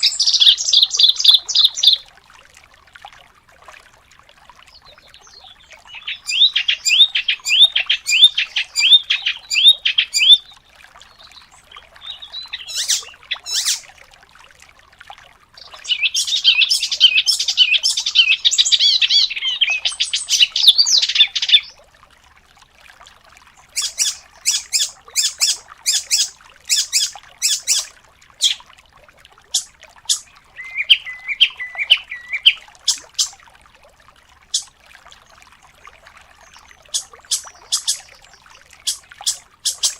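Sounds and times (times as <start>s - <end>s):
songbird singing: 0.0s - 2.0s, 4.7s - 13.9s, 15.6s - 21.8s, 23.6s - 28.6s, 29.5s - 33.4s, 36.4s - 39.9s.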